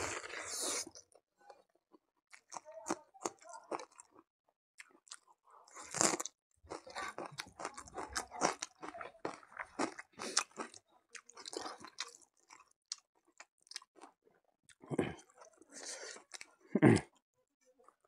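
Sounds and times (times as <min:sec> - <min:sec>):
onion crunching while chewed: 0:04.8 - 0:14.1.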